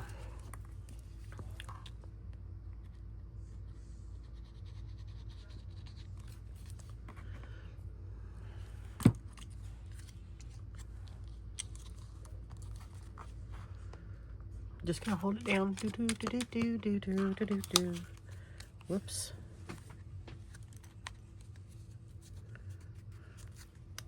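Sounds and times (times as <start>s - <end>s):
steady low hum: 0.0s - 24.0s
paper scratching and rustling: 14.9s - 18.2s.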